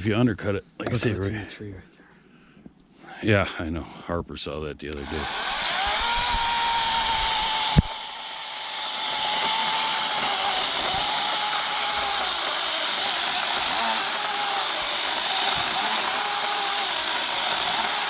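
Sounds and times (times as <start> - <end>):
chainsaw running with high whine: 4.9 - 18.0.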